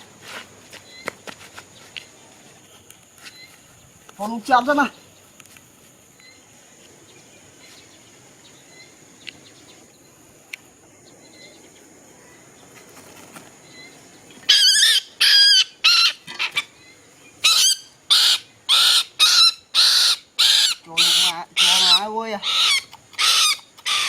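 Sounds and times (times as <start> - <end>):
faint chirps: 6.1 - 15.6
bird harsh calls: 12.2 - 24.0.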